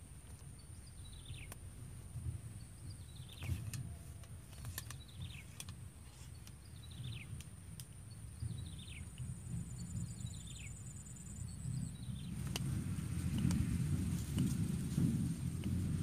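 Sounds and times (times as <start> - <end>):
insect drone: 8.1 - 16.0.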